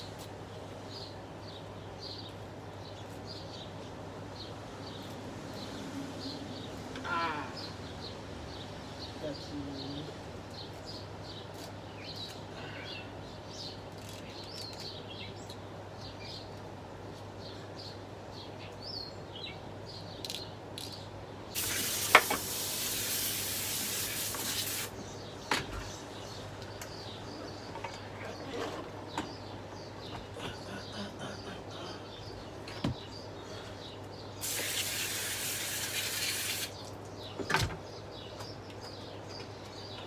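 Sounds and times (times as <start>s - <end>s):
pressurized spray hissing: 21.6s - 25.0s, 34.4s - 36.8s.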